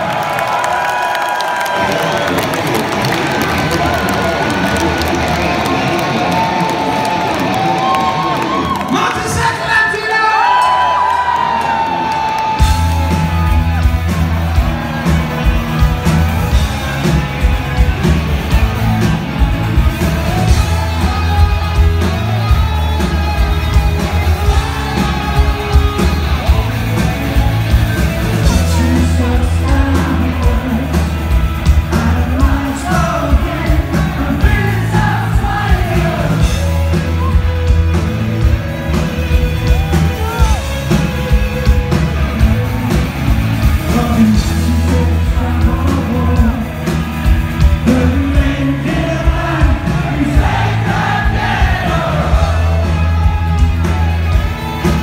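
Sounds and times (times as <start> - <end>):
live rock band playing: 1.1 - 55.0
person singing: 28.3 - 36.8, 43.7 - 53.2.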